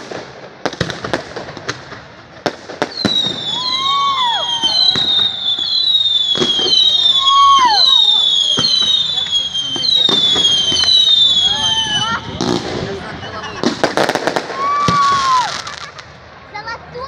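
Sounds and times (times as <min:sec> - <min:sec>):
whistling fireworks: 0:00.0 - 0:16.3
fireworks bangs: 0:00.0 - 0:16.9.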